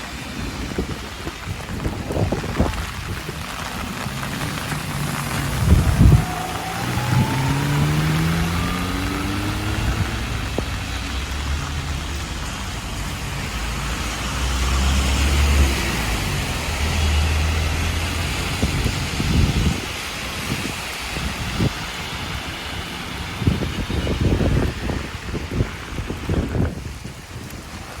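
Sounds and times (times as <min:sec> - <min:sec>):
rain hissing on wet road: 0:00.0 - 0:28.0
passing vehicles humming: 0:03.2 - 0:28.0
vehicle engine accelerating: 0:03.5 - 0:19.8.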